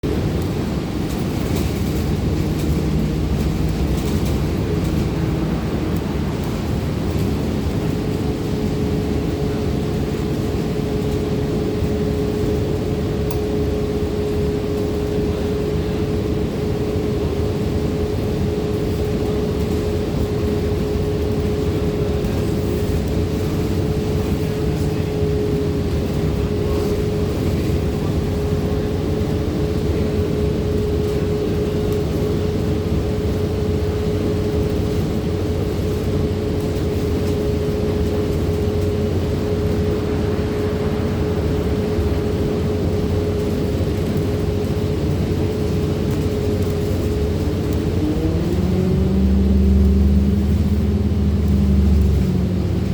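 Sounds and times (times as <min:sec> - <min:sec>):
bus engine and road noise: 0:00.0 - 0:52.9
constant hum: 0:00.0 - 0:52.9.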